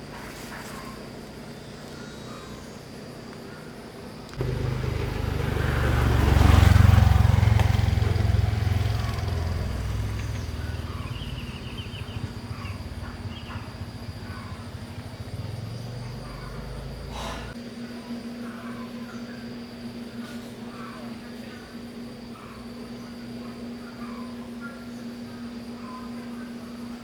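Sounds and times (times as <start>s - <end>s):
vehicle engine deep rumble: 4.3s - 17.6s.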